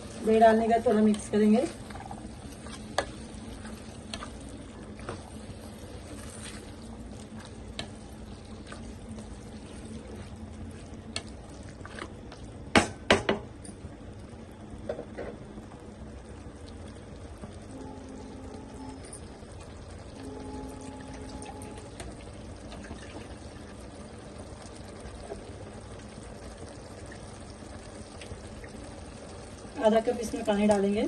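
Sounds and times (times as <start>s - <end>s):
food sizzling while stirred: 0.0s - 13.1s.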